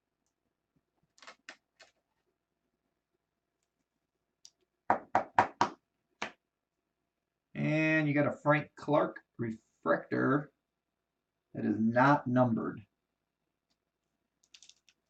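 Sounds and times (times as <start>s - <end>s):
sharp knocks on a hard surface: 4.9s - 6.4s.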